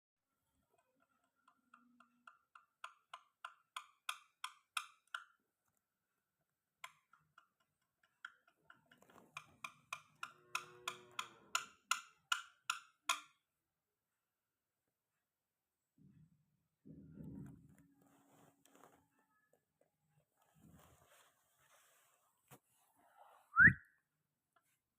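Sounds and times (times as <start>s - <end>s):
sharp hollow clicks: 6.8s - 13.4s.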